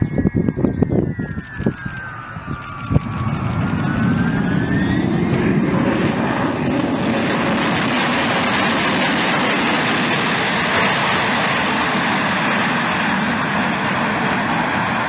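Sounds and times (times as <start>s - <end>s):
high jet engine whine: 0.0s - 15.0s
jet engines roaring: 0.0s - 15.0s.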